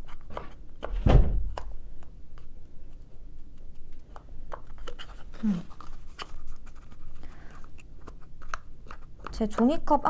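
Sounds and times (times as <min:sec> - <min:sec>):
small objects clicking and tapping: 0:07.6 - 0:10.0.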